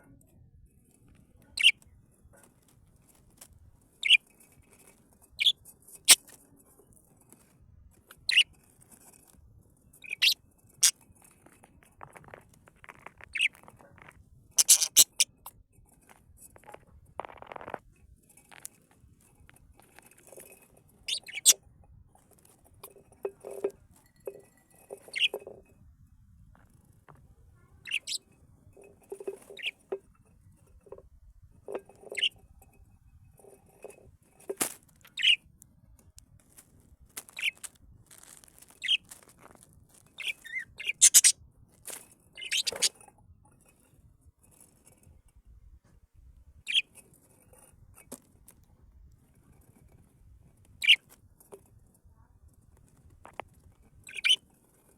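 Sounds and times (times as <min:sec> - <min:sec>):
birds chirping: 0:01.6 - 0:01.8, 0:04.0 - 0:04.2, 0:08.2 - 0:08.4, 0:10.0 - 0:10.4, 0:13.3 - 0:13.6, 0:14.6 - 0:15.4, 0:21.0 - 0:21.6, 0:22.8 - 0:25.6, 0:27.7 - 0:28.3, 0:29.0 - 0:30.0, 0:31.7 - 0:32.4, 0:35.1 - 0:35.4, 0:37.3 - 0:37.6, 0:38.8 - 0:39.1, 0:40.2 - 0:41.4, 0:42.4 - 0:42.9, 0:46.7 - 0:46.9, 0:50.8 - 0:51.0, 0:54.0 - 0:54.4.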